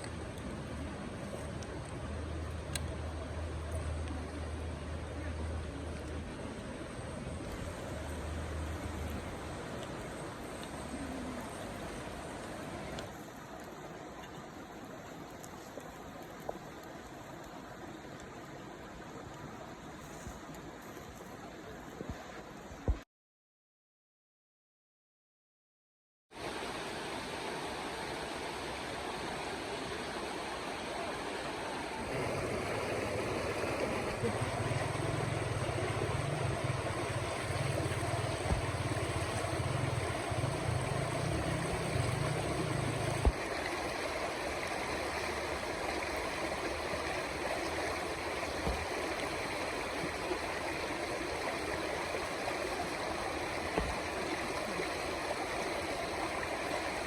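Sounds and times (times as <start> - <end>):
river water rushing: 0.0 - 20.0, 26.4 - 57.0
low hum: 32.0 - 43.4.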